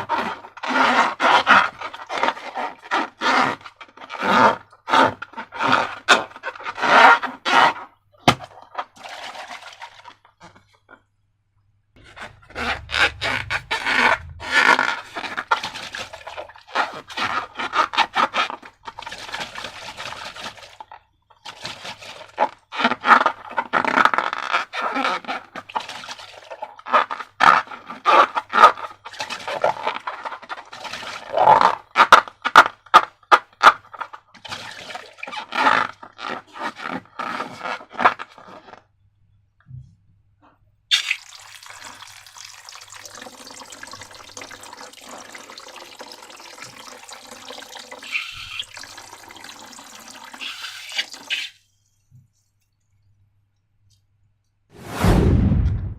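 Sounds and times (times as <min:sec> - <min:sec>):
slime crackling and scraping: 0:12.0 - 0:19.8.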